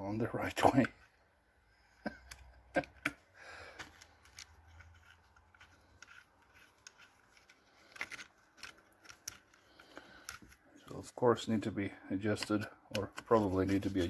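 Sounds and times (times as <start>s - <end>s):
small metal parts clicking: 3.8s - 10.6s.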